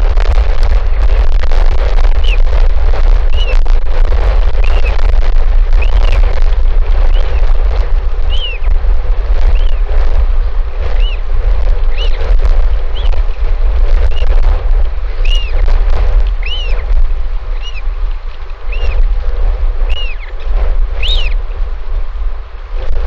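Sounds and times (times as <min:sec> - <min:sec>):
wind buffeting microphone: 0:00.0 - 0:23.0
bird chirping: 0:03.3 - 0:03.6, 0:04.6 - 0:05.0, 0:05.7 - 0:06.3, 0:08.3 - 0:08.7, 0:09.4 - 0:09.9, 0:10.9 - 0:11.2, 0:11.8 - 0:13.2, 0:14.1 - 0:14.3, 0:15.2 - 0:15.6, 0:16.4 - 0:16.8, 0:17.6 - 0:17.9, 0:18.7 - 0:19.0, 0:19.9 - 0:20.3, 0:21.0 - 0:21.4.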